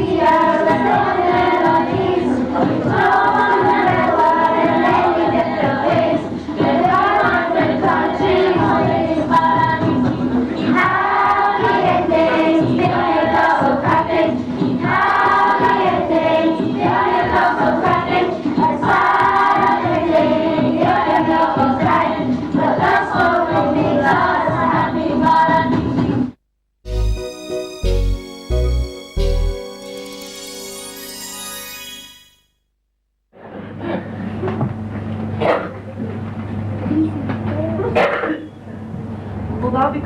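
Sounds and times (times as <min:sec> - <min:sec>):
choir singing: 0:00.0 - 0:25.8.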